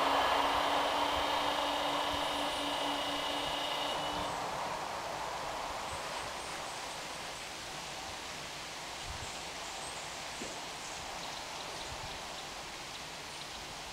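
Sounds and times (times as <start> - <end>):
passing train: 0.0 - 8.2
rain and wind in trees: 0.0 - 13.9.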